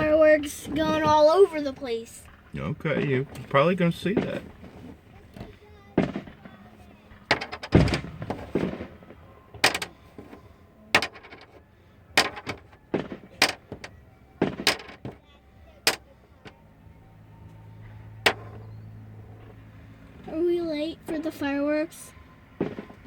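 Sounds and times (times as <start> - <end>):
fireworks bangs: 0.0 - 16.7, 19.3 - 23.0.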